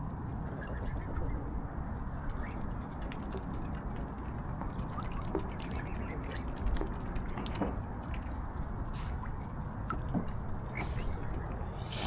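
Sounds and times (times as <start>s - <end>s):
low wind rumble: 0.0s - 12.0s
water dripping and splashing: 2.9s - 9.2s.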